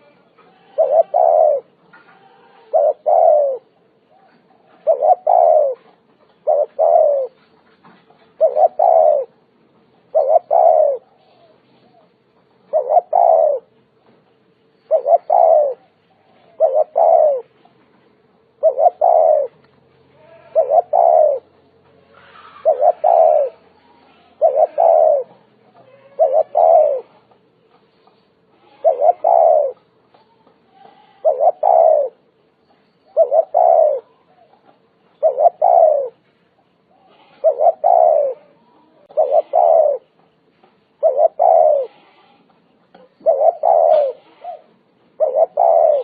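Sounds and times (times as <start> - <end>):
dove cooing: 0.0 - 14.2, 14.9 - 17.8, 18.4 - 19.6, 20.2 - 32.3, 33.0 - 40.3, 41.0 - 46.0.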